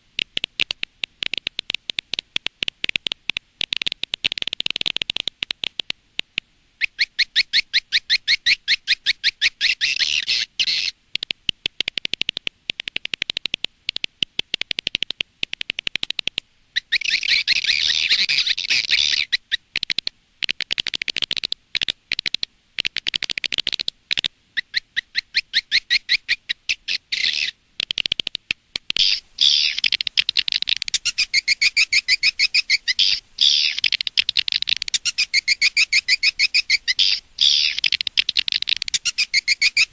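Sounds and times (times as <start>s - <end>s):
swiftlet chirping twitters: 16.8s - 19.4s, 29.0s - 39.9s.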